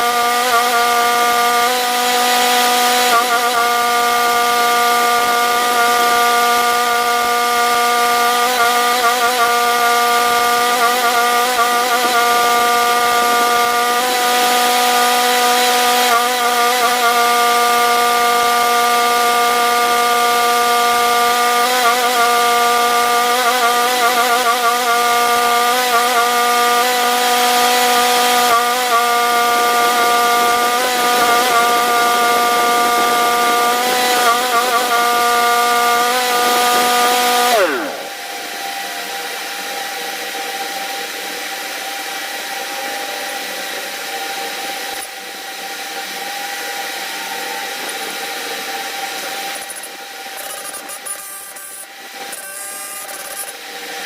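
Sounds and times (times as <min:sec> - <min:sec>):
power tool motor running: 0:00.0 - 0:54.0.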